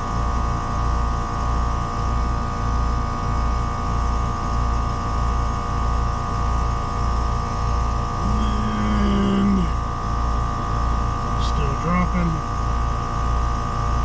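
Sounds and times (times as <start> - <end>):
steady high whine: 6.8 - 14.0
pulsing low hum: 6.9 - 14.0.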